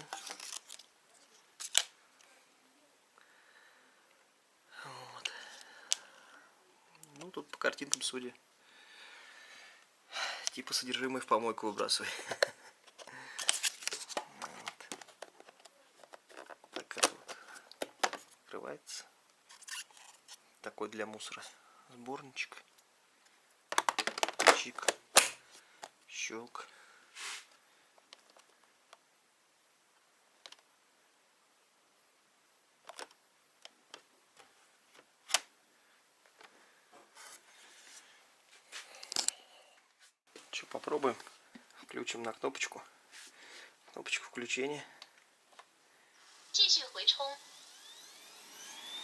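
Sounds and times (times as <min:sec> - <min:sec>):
plastic parts clicking: 0:23.7 - 0:25.3.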